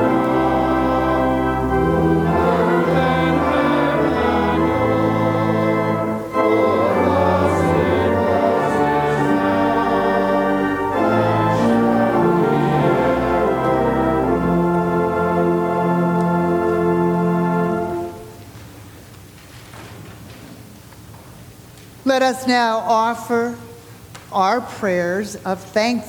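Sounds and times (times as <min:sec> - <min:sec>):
choir singing: 0:00.0 - 0:18.3
organ playing a hymn: 0:00.0 - 0:18.6.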